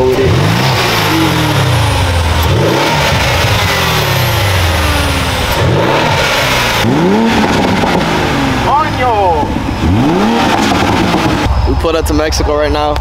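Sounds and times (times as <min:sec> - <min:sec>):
sports car engines revving: 0:00.0 - 0:13.0.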